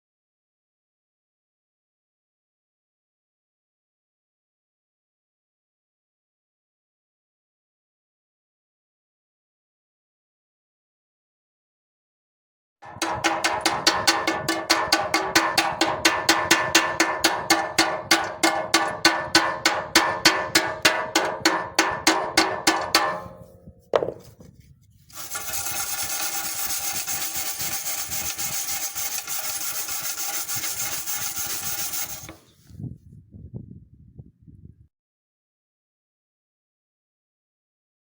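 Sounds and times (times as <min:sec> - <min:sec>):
hammer strikes on steel: 0:12.8 - 0:24.2
grinding rasp on metal: 0:12.9 - 0:23.4, 0:25.1 - 0:32.5.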